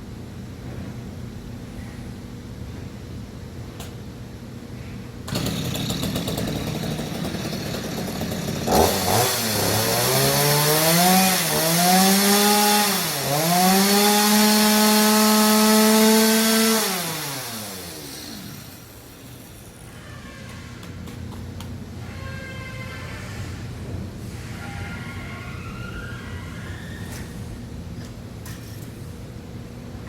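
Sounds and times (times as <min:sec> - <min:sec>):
power tool motor cutting timber: 0:05.3 - 0:19.6.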